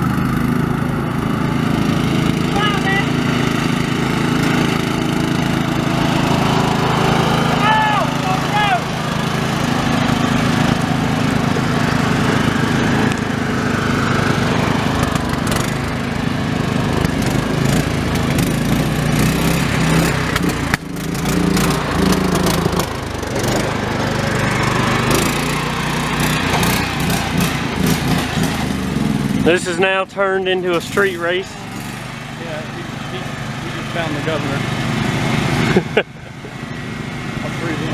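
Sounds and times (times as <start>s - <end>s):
lawn mower engines running: 0.0s - 37.9s
sharp clicks and knocks: 17.0s - 17.4s, 20.0s - 21.1s.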